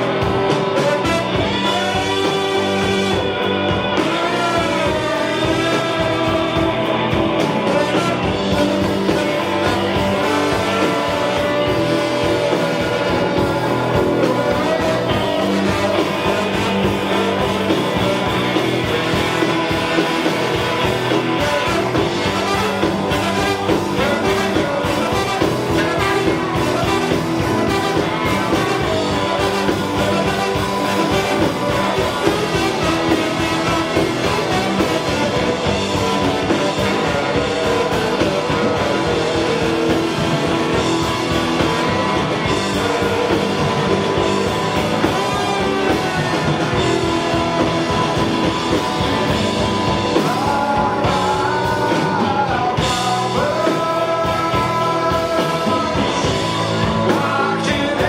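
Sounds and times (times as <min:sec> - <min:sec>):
bass guitar: 0:00.0 - 0:58.0
electric guitar: 0:00.0 - 0:58.0
steady drum beat: 0:00.0 - 0:58.0.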